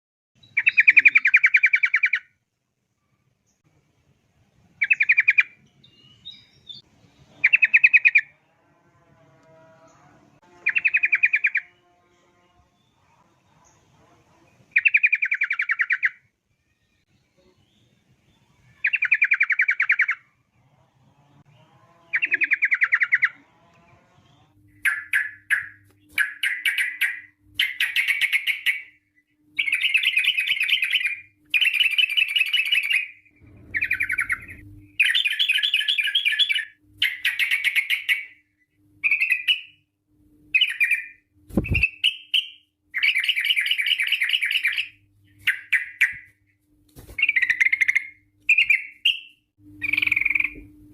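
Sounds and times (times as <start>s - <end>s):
bird trilled song: 0.4s - 2.4s, 4.8s - 8.4s, 9.8s - 13.0s, 14.7s - 16.2s, 24.2s - 39.8s, 40.5s - 46.4s, 47.2s - 50.7s
faint hum: 2.3s - 50.9s.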